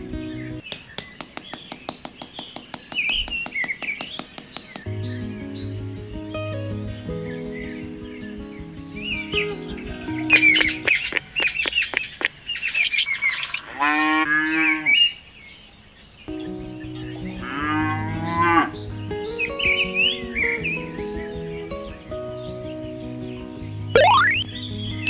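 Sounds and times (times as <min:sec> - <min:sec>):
birds chirping: 0:24.0 - 0:24.4.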